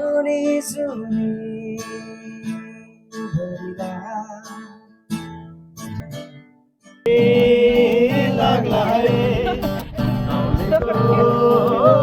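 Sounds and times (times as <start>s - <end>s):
acoustic guitar strummed: 0.0s - 12.0s
person singing: 7.1s - 12.0s.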